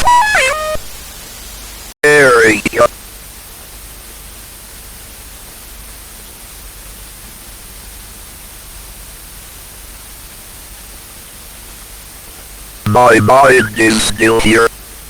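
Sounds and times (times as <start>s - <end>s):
static hiss: 0.0s - 2.9s, 12.9s - 14.7s.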